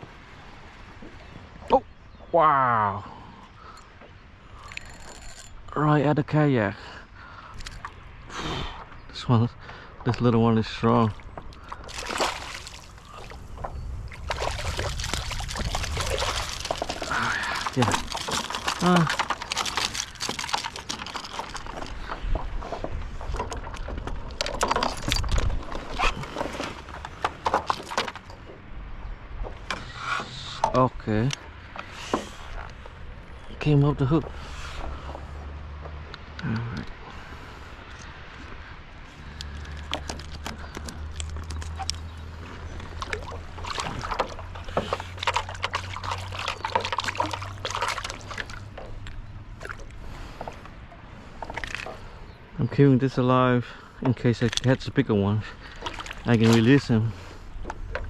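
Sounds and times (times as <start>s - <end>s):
knocks and clattering on a kayak: 11.0s - 37.3s, 39.3s - 52.4s, 55.5s - 58.0s
fish thrashing against boat: 11.2s - 28.5s, 39.2s - 52.3s, 55.5s - 58.0s.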